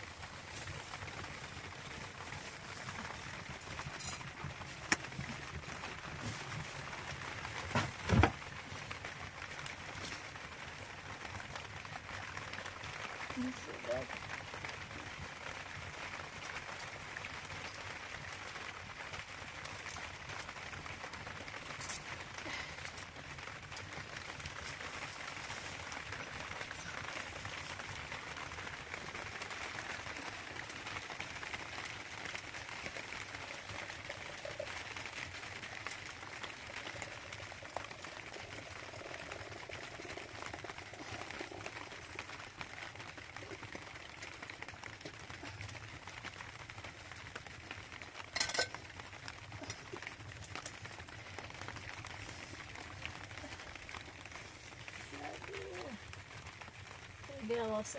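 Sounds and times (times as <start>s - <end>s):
steady rain hissing: 0.0s - 57.9s.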